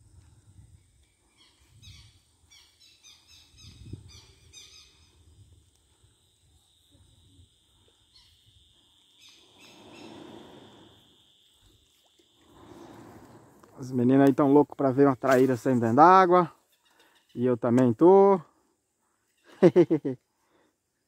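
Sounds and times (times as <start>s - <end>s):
faint bird chirps: 0.9s - 5.3s, 16.6s - 17.5s.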